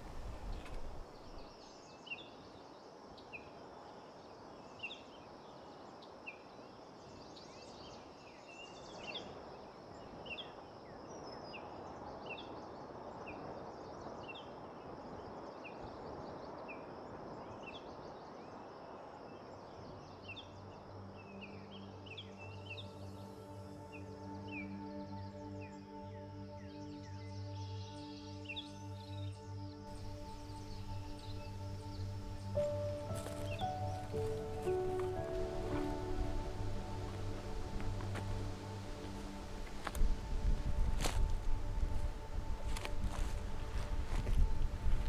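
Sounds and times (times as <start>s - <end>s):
birds chirping: 0.0s - 1.6s, 29.9s - 40.4s
faint forest background hiss: 0.0s - 45.0s.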